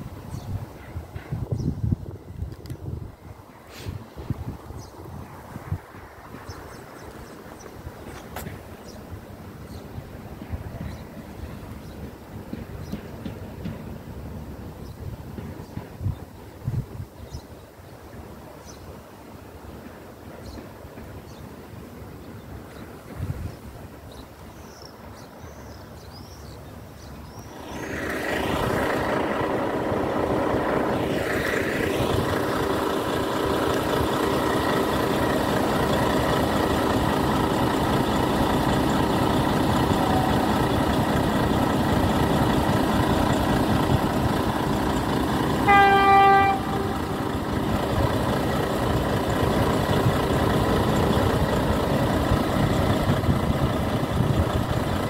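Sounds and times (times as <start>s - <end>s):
train engine and running noise: 0.0s - 55.0s
short train horn blast: 45.6s - 47.3s.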